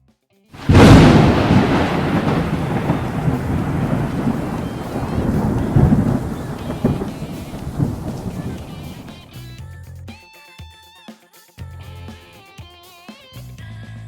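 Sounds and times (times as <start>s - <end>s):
falling rain: 0.6s - 9.4s
thunder clap: 0.6s - 9.4s
thunder rumbling: 0.6s - 9.4s.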